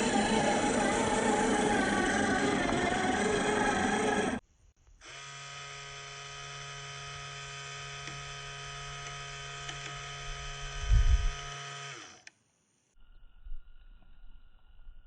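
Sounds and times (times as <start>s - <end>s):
electric winch motor whining: 0.0s - 4.4s, 5.1s - 12.3s.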